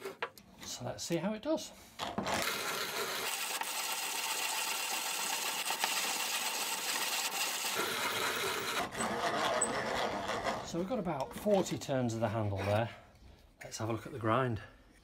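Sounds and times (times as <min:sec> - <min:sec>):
hand coffee grinder crunching: 0:02.2 - 0:10.8.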